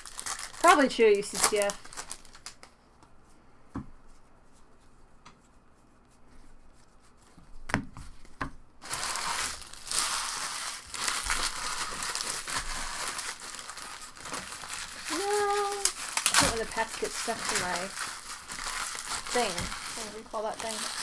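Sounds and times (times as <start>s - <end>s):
card wrappers crinkling: 0.0s - 2.8s, 8.8s - 21.0s.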